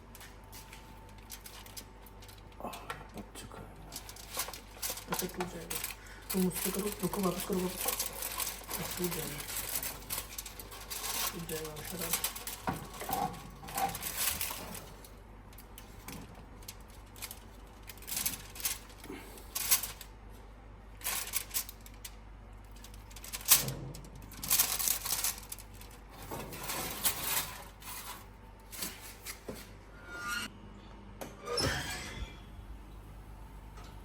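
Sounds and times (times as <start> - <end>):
kitchen utensils clicking and scraping: 3.9 - 15.2, 24.4 - 30.3.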